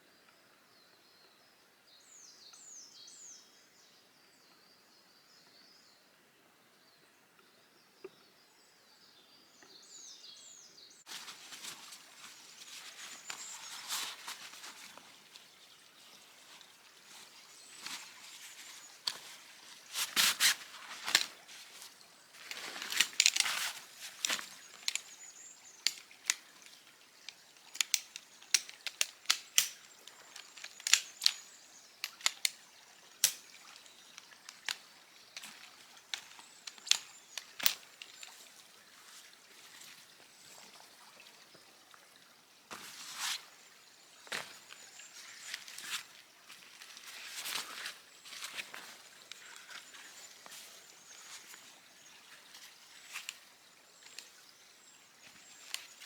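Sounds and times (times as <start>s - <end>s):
faint birdsong: 0.0s - 56.0s
dry wood crackling and snapping: 22.4s - 25.2s, 25.8s - 32.6s, 33.2s - 38.4s.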